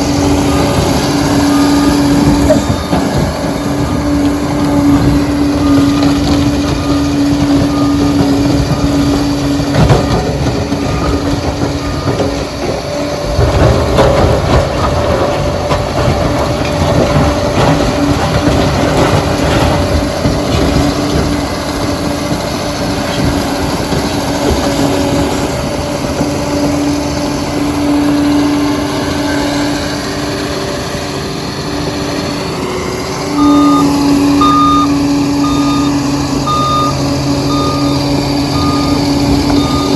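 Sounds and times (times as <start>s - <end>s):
bulldozer engine drone: 0.0s - 39.9s
reversing alarm beeps: 0.4s - 3.0s, 4.6s - 13.2s, 33.3s - 39.9s.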